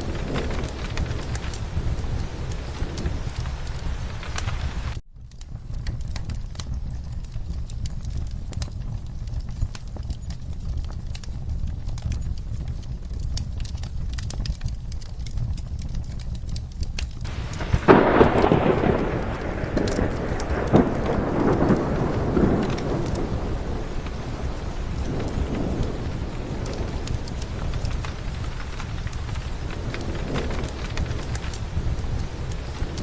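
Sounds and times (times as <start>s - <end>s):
thunder rolling: 0.0s - 5.0s, 17.3s - 33.0s
steady rain: 0.0s - 33.0s
wood fire crackling: 0.0s - 33.0s.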